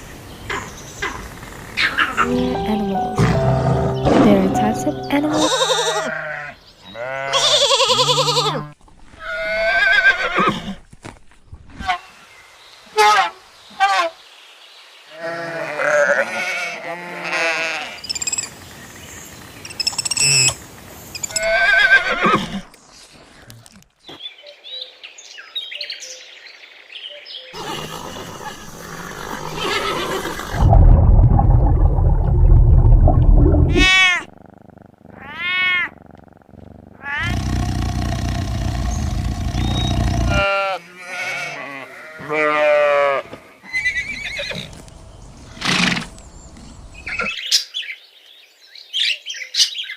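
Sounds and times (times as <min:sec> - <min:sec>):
high arching animal calls: 0:27.6 - 0:30.6, 0:36.9 - 0:41.2
loud deep animal calls: 0:35.9 - 0:40.5.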